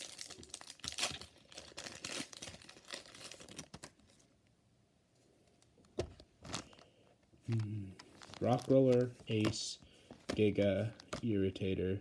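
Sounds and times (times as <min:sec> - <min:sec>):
foil wrapper crinkling and tearing: 0:00.0 - 0:04.3, 0:07.5 - 0:09.5.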